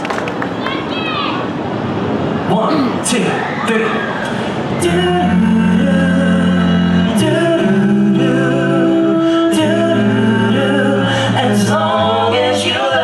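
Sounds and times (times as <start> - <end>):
male group singing in harmony: 4.8 - 13.0.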